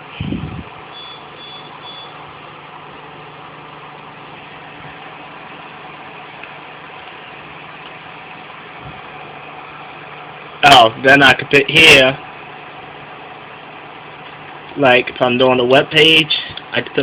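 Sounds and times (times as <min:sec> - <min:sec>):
background hum and hiss: 0:00.0 - 0:17.0
high electronic beeps: 0:00.9 - 0:02.2.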